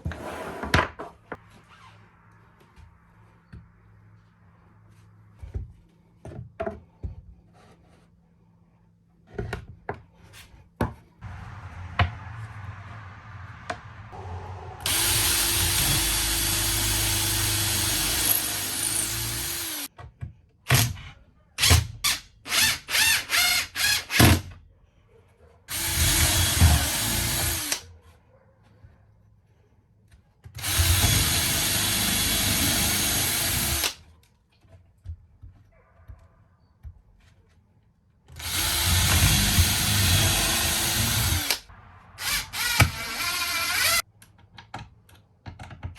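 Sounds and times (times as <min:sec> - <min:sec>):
power drill running: 0:14.2 - 0:19.9, 0:22.5 - 0:24.2, 0:25.7 - 0:27.8, 0:30.6 - 0:34.0, 0:38.4 - 0:41.6, 0:42.2 - 0:44.0.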